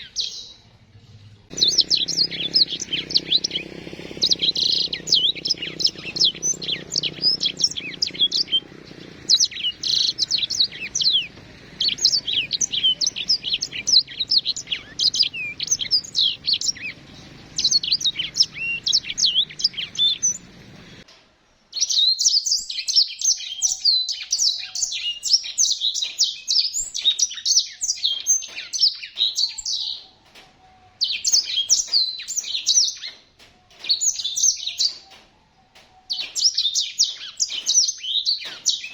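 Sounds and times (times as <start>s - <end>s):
low steady hum: 0.6s - 21.0s
finches twittering song: 1.5s - 21.1s, 31.0s - 35.2s.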